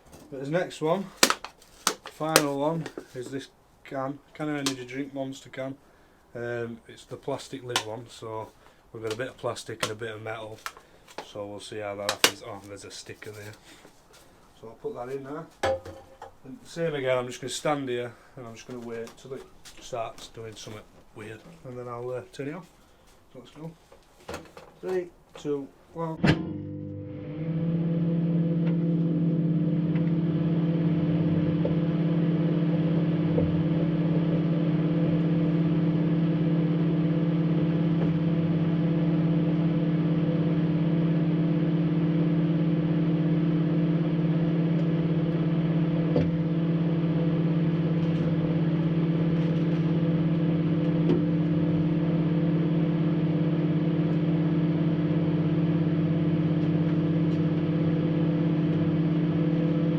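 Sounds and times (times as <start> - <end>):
microwave oven humming: 26.3 - 59.9.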